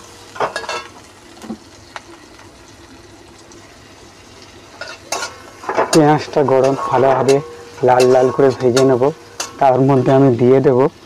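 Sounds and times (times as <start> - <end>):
onions sizzling in a pan: 0.0 - 11.0
spatula tapping and scraping pan: 4.8 - 9.7.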